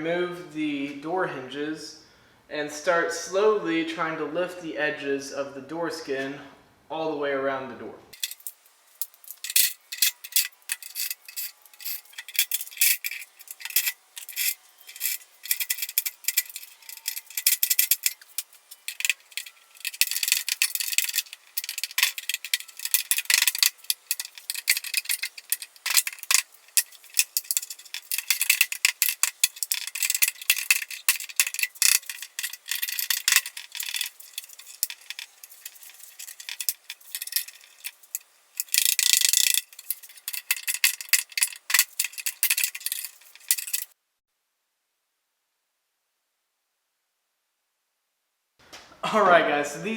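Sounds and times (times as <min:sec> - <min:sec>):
hand tools clinking on metal: 0:08.2 - 0:44.0.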